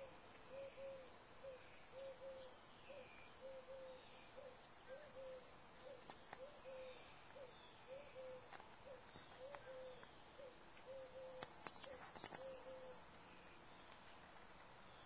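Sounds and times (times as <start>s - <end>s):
soft low bird coos: 0.0s - 13.7s
faint high bird chirps: 0.0s - 14.0s.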